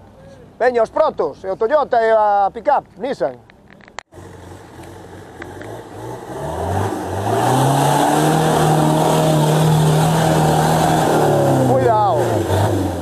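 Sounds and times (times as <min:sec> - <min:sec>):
off-road vehicle engine revving: 0:04.1 - 0:13.0.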